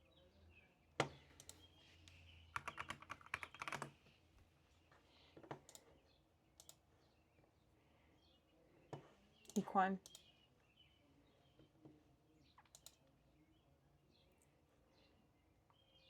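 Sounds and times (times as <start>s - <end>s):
typing on keyboard: 2.5s - 4.0s, 12.6s - 13.0s.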